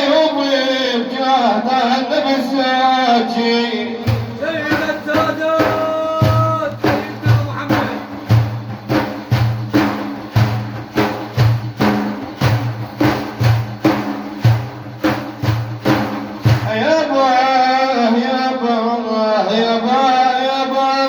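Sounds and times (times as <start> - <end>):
hand drums beating: 4.1 - 16.8.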